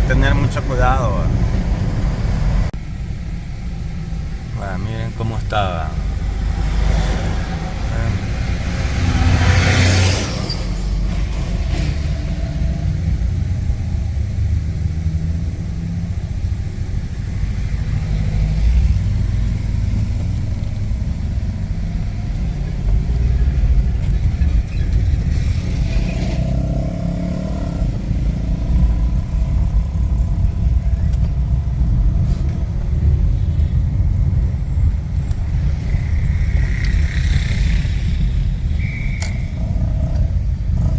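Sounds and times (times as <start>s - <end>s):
street traffic: 0.0s - 40.9s
vehicle passing loudly: 5.9s - 16.3s, 25.2s - 30.9s, 35.4s - 40.9s.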